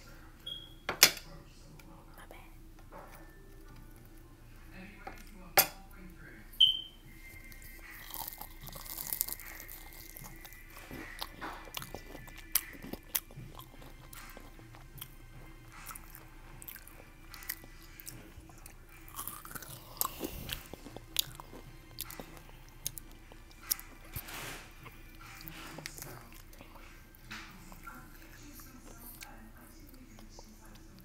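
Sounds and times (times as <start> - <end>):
crunchy chewing of fried food: 7.2 - 31.0.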